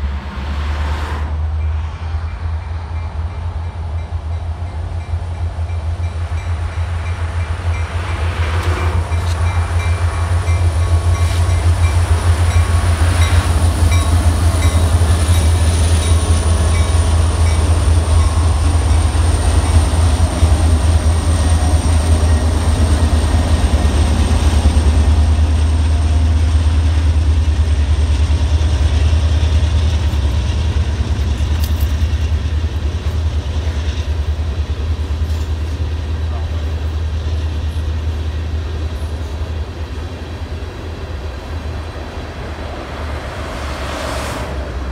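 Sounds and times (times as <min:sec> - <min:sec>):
diesel locomotives rumbling: 0:00.0 - 0:44.9
train wheels clattering: 0:29.2 - 0:34.1, 0:35.0 - 0:36.6.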